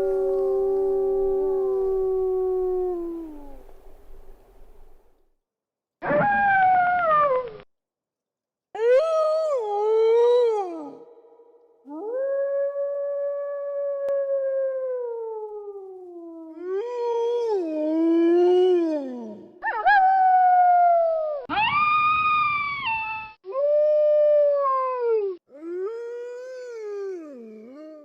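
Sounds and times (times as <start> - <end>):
wolves howling: 0.0 - 3.7.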